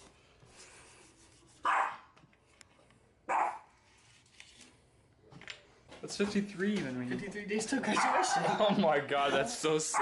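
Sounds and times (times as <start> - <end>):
dog barking: 1.6 - 2.1, 3.3 - 3.7, 8.0 - 8.5.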